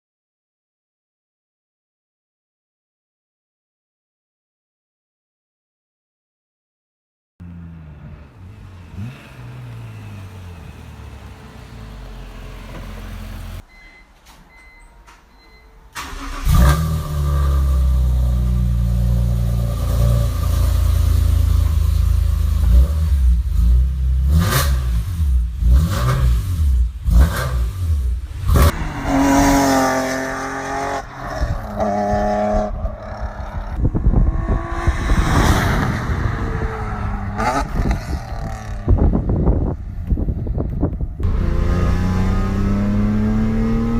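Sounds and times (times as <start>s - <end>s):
car engine revving: 7.4s - 13.6s, 16.0s - 43.9s.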